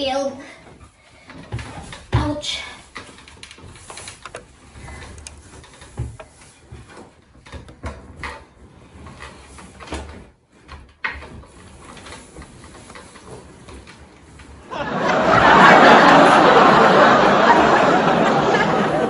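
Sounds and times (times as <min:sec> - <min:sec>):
rubbing and shuffling: 0:00.6 - 0:19.0
rocking chair knocking: 0:01.3 - 0:14.6.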